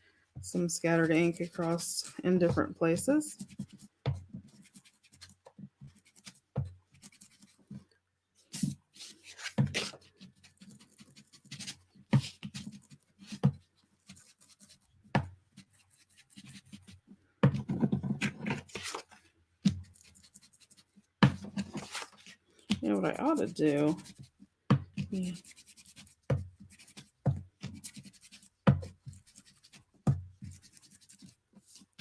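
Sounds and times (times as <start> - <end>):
ink pad rubbing paper: 21.6 - 24.4, 25.0 - 32.0
ink pad tapping paper: 22.7 - 29.8.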